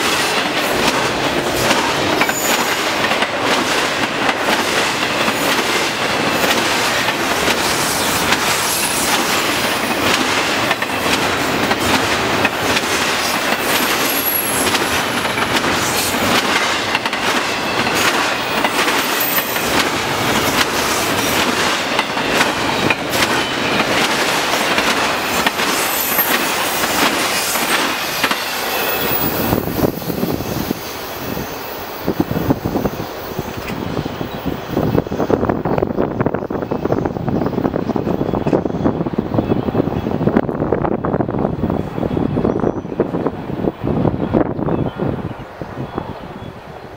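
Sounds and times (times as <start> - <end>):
train wheels clicking over rail joints: 0.0 - 31.3
high wheel squeals: 2.2 - 2.9, 14.1 - 14.8, 17.7 - 19.8, 25.8 - 35.3.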